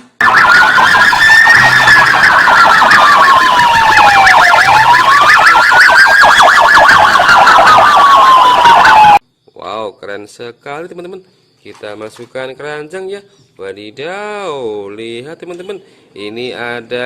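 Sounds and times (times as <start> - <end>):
police siren wailing: 0.1 - 9.2
rapid siren chirps: 0.1 - 9.2.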